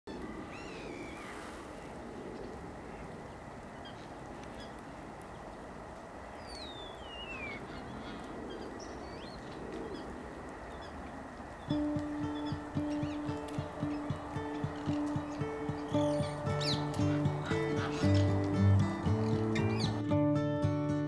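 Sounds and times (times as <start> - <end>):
wind: 0.0 - 21.0.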